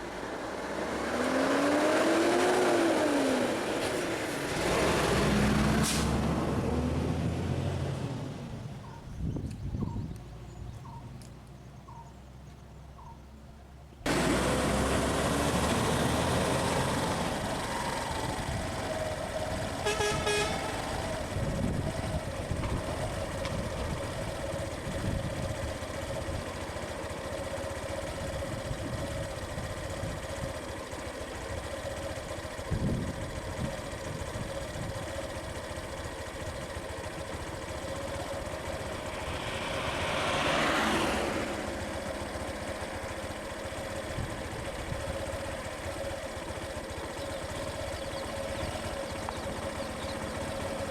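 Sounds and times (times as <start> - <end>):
vehicle engines running: 0.0 - 50.9
vehicle horn honking: 19.7 - 21.0.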